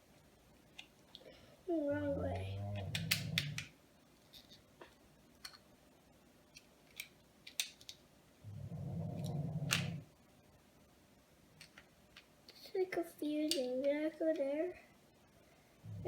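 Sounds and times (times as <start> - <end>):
plastic bricks clicking: 2.8 - 3.7, 6.6 - 8.0
low hum: 15.8 - 16.0.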